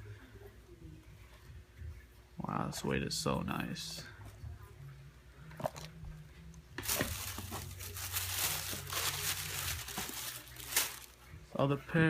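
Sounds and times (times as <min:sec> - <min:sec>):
paper crinkling and rustling: 0:06.8 - 0:11.2.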